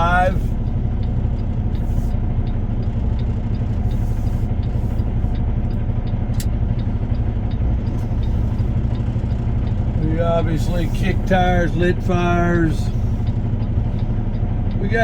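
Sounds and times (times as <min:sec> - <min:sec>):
diesel truck engine idling: 0:00.0 - 0:15.0
faint light ticking: 0:00.0 - 0:15.0
sharp click: 0:06.3 - 0:06.6.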